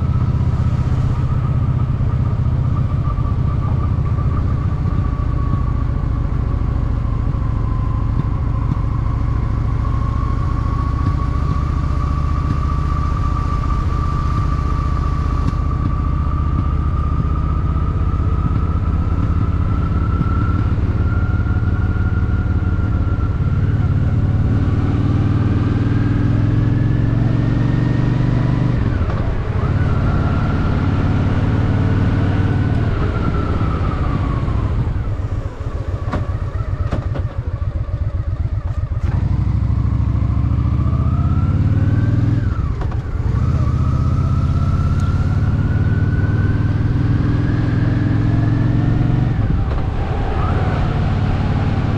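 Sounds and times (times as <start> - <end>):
motorcycle engine accelerating: 0.0 - 51.9.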